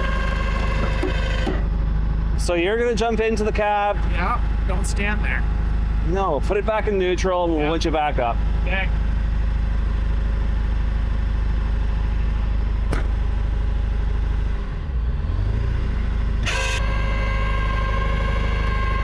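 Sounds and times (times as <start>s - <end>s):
winch pulling: 0.0s - 1.8s, 16.4s - 19.0s
tow truck engine running: 0.0s - 19.0s.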